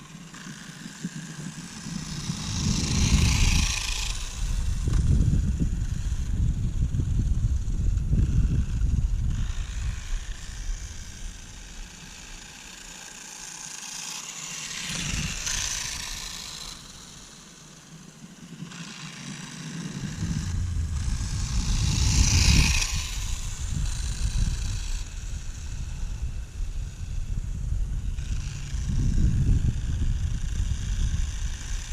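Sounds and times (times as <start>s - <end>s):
electric rc motorcycle whine: 0.0s - 31.9s
low rumble: 19.8s - 31.4s.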